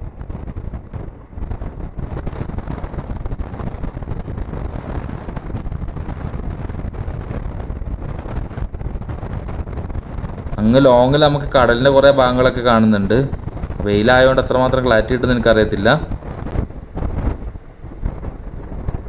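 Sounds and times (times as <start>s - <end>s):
wind buffeting microphone: 0.0s - 19.0s
train rumbling at speed: 10.4s - 19.0s.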